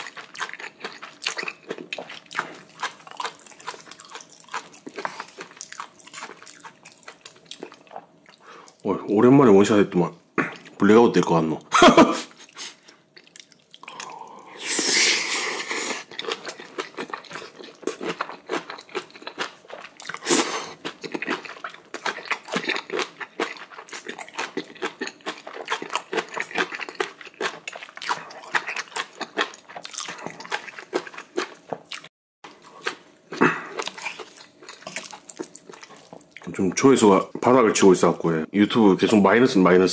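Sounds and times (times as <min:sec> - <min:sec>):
wet chewing with smacking: 0:00.0 - 0:08.8, 0:12.4 - 0:14.2, 0:15.9 - 0:36.5.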